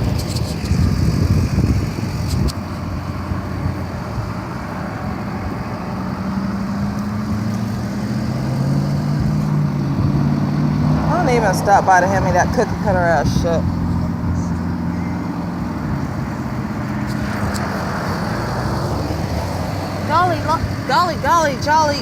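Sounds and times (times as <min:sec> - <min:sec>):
road traffic rumble: 0:00.0 - 0:22.0
vehicle engine humming: 0:00.0 - 0:22.0
sharp clicks: 0:16.9 - 0:17.9.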